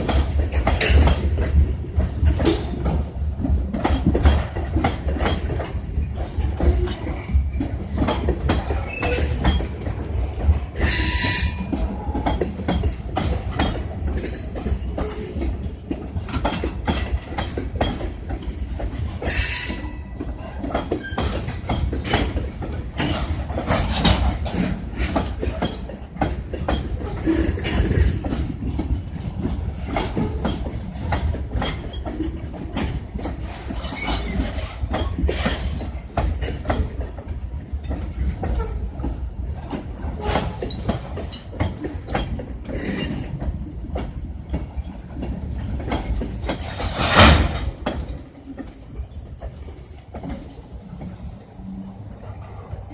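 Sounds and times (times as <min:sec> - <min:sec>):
freight train wheels clattering: 0:00.0 - 0:52.9
low train rumble: 0:00.0 - 0:52.9.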